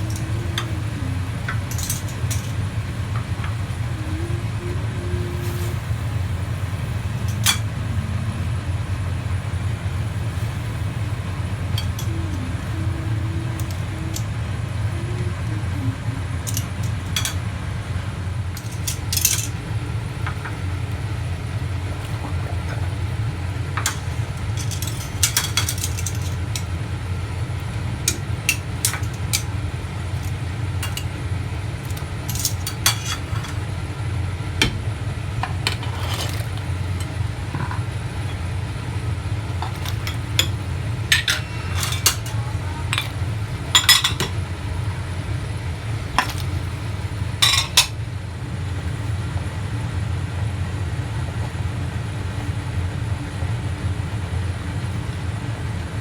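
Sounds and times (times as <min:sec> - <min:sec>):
metal utensils clinking on pot: 0:00.0 - 0:03.6, 0:07.1 - 0:07.8, 0:11.6 - 0:14.3, 0:16.4 - 0:17.5, 0:18.5 - 0:19.6, 0:23.8 - 0:26.8, 0:28.0 - 0:31.2, 0:31.8 - 0:33.7, 0:35.4 - 0:38.4, 0:39.6 - 0:44.4, 0:46.1 - 0:46.7, 0:47.4 - 0:48.0.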